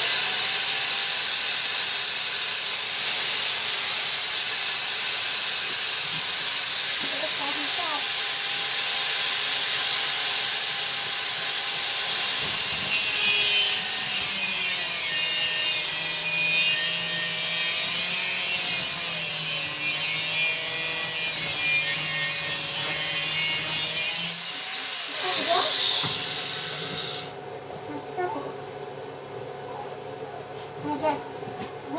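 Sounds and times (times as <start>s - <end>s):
angle grinder cutting steel: 0.0s - 27.4s.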